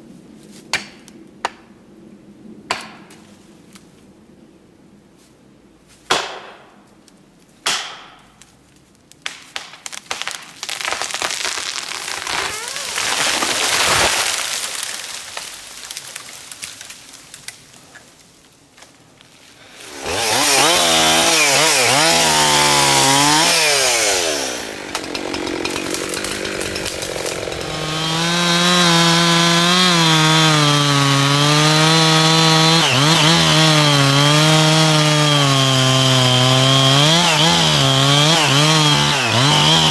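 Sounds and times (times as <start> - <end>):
chainsaw engine revving: 11.6 - 14.4, 19.7 - 39.9.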